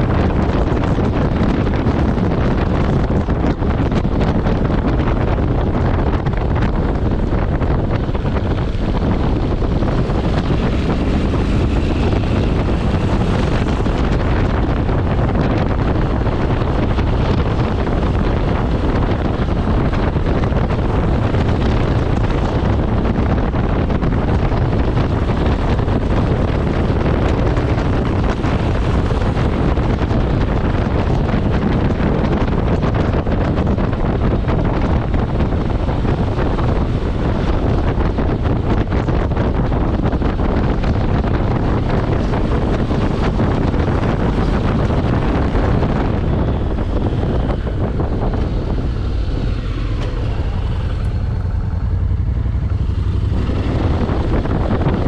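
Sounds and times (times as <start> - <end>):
motorcycle ride rush: 0.0 - 55.0
wind buffeting microphone: 0.0 - 55.0.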